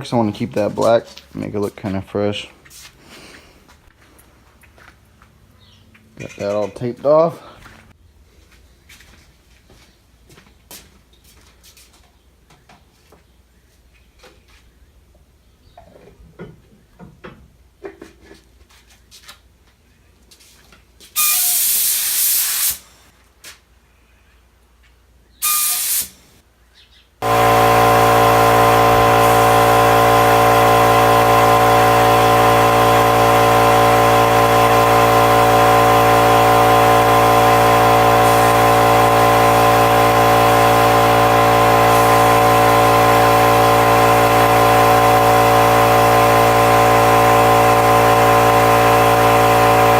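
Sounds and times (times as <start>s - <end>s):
spray hiss: 21.2s - 22.9s, 25.4s - 26.2s
machine motor hum and whine: 27.2s - 49.9s.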